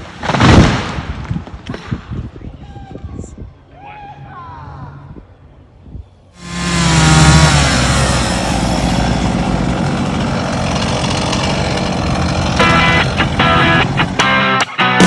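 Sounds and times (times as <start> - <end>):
chainsaw running: 6.4 - 15.0.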